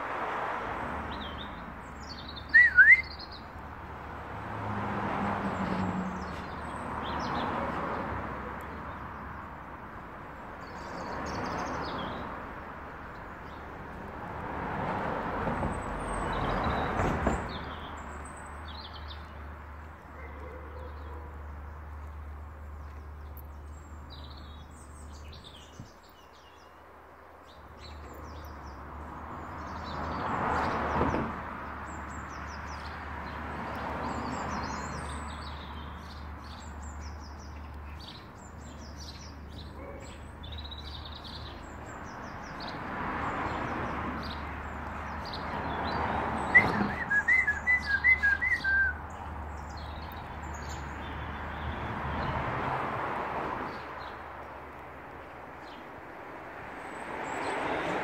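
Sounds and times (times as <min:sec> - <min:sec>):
small birds chirping and twittering: 0:01.0 - 0:04.0, 0:05.6 - 0:14.2, 0:15.4 - 0:52.8, 0:53.6 - 0:57.8
bird calling short notes: 0:02.5 - 0:03.2.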